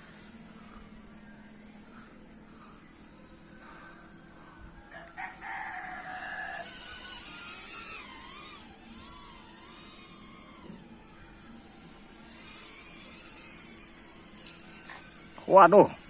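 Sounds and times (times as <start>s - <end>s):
high whine of drone motors: 0.0s - 16.0s
rooster crowing: 4.8s - 7.4s.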